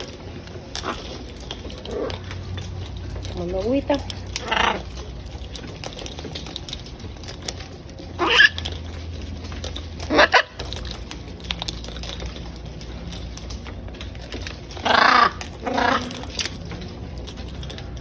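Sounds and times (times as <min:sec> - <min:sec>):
parrots squawking harshly: 0:00.7 - 0:02.4, 0:04.2 - 0:05.2, 0:08.1 - 0:09.0, 0:09.9 - 0:11.0, 0:14.7 - 0:16.6.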